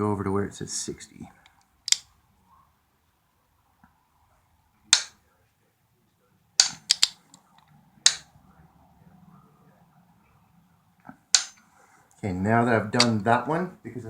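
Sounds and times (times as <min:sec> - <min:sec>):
wrench clicking: 0:06.6 - 0:07.2, 0:11.4 - 0:11.6.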